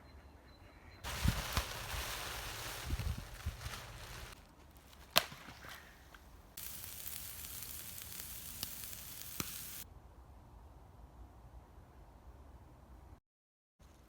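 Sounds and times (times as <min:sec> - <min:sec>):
food sizzling with pops: 0:01.1 - 0:04.4, 0:06.6 - 0:09.8.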